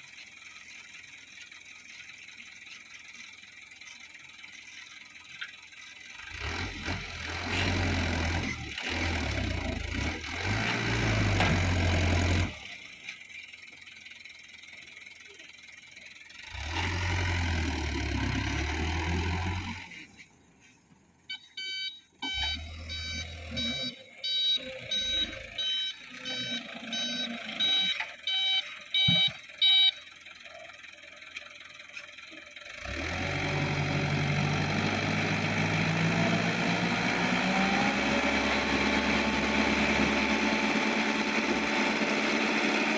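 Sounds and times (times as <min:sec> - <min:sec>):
diesel truck engine running: 0:00.0 - 0:42.9
reversing alarm beeping: 0:21.3 - 0:30.1.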